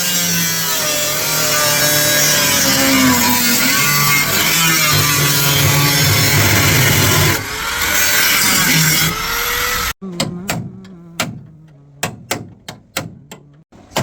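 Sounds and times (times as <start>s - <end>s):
power tool running: 0.0s - 11.5s.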